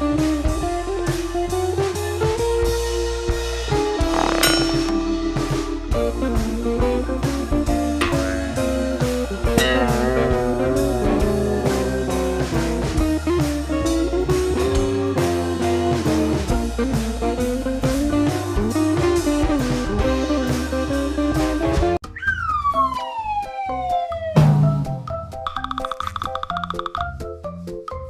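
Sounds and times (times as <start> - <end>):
bass: 0.0 - 28.0
electric guitar melody: 4.2 - 21.9
drum beat: 7.8 - 13.6.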